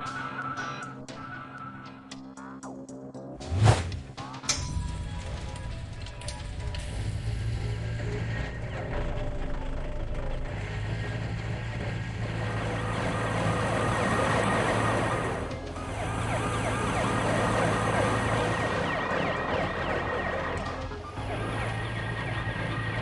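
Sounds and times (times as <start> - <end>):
cartoon background music: 0.0 - 23.0
siren-like pitch glides: 12.4 - 23.0.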